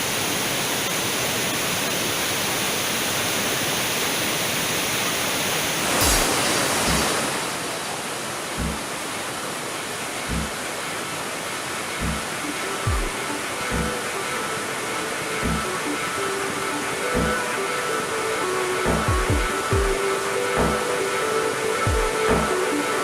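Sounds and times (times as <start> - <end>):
waterfall rushing: 0.0 - 23.0
low thuds: 8.6 - 8.9, 10.3 - 10.5, 12.0 - 12.2, 15.4 - 15.7.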